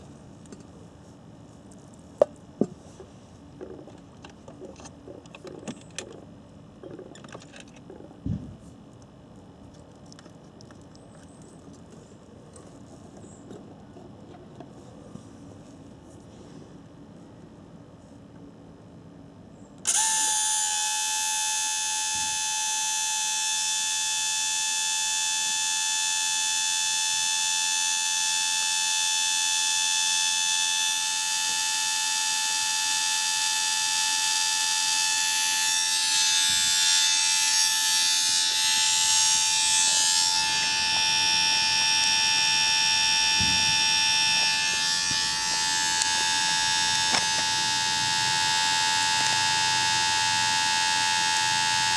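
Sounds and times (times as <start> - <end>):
electric motor whining: 19.8 - 51.9.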